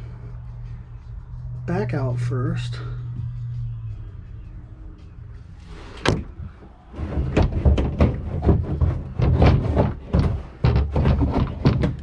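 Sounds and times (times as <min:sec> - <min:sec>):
fuel tank scraping: 0:05.5 - 0:12.0
fuel tank knocks and thumps: 0:06.1 - 0:12.0.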